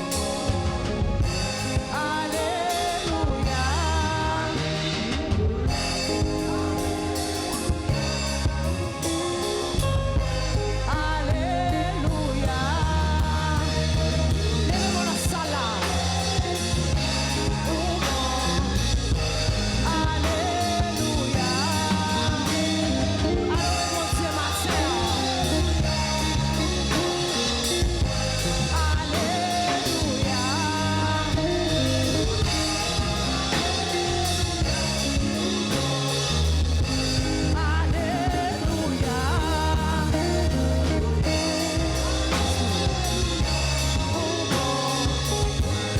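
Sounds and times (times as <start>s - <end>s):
person singing: 0.0s - 45.9s
worship band playing: 0.0s - 45.9s.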